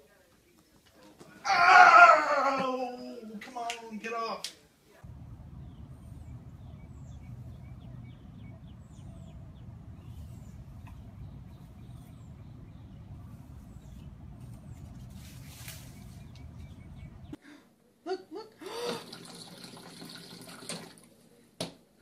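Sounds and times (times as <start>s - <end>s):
birds chirping: 5.0s - 17.4s
rustling: 5.0s - 17.4s
steady low rumble: 5.0s - 17.4s.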